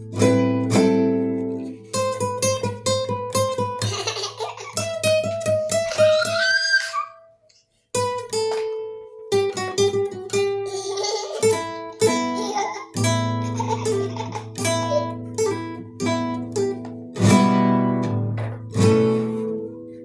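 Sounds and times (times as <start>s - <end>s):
guitar melody: 0.0s - 7.0s, 8.0s - 20.0s.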